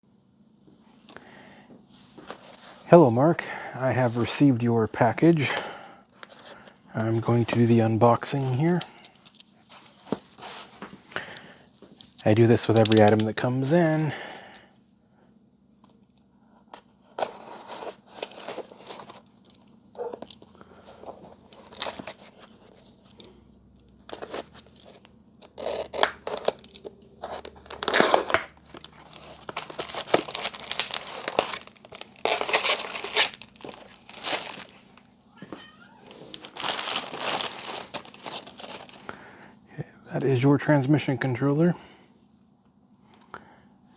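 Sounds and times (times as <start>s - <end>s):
packaging tearing and crinkling: 12.5s - 14.2s, 21.1s - 22.8s, 24.0s - 35.0s, 36.0s - 39.1s.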